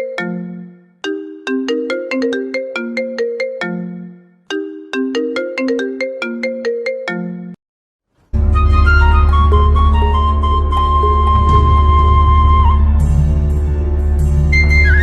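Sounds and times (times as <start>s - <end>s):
mobile phone ringtone melody: 0.0s - 7.6s.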